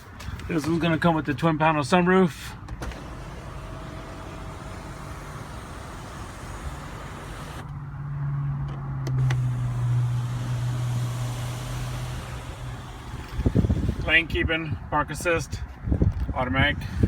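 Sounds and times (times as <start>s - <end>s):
sunroof electric motor hum: 2.9s - 7.7s, 9.2s - 14.1s.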